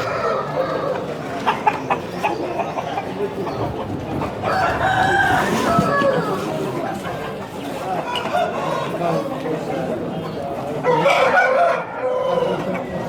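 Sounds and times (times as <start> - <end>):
rooster crowing: 4.5 - 6.4.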